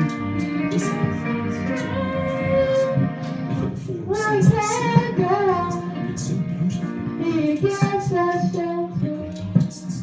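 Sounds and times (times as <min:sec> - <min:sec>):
background music: 0:00.0 - 0:10.0
girl singing: 0:00.4 - 0:03.2, 0:04.0 - 0:06.3, 0:07.2 - 0:10.0.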